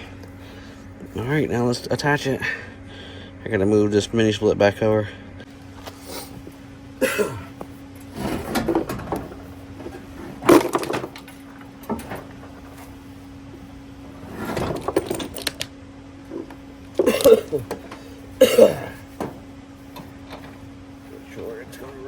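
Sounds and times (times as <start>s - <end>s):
low hum: 0.0s - 22.0s
knocks scrapes and clunks: 7.4s - 22.0s.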